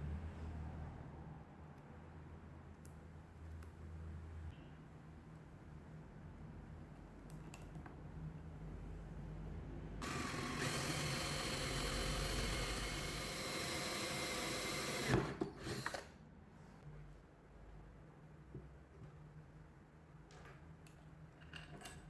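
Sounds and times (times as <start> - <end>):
small power tool running: 10.0 - 16.0.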